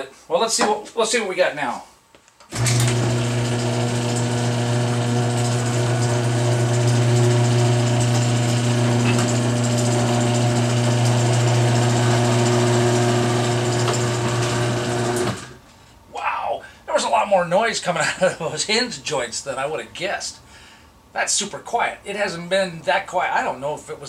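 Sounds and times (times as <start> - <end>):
garage door opener running: 2.5 - 15.6.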